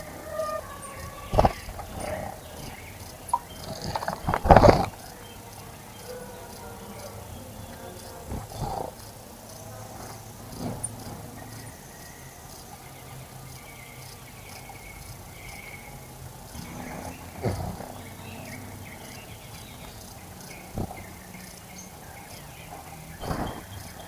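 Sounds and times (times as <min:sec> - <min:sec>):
whistled bird calls: 0:00.0 - 0:05.4, 0:18.2 - 0:24.0
insects chirping: 0:00.0 - 0:24.0.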